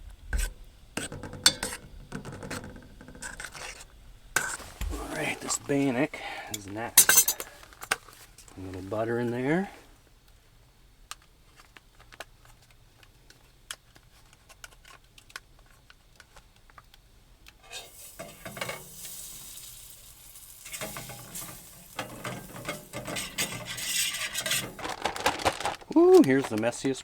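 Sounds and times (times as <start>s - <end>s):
butter sizzling in a pan: 0.1s - 5.8s, 17.5s - 26.1s.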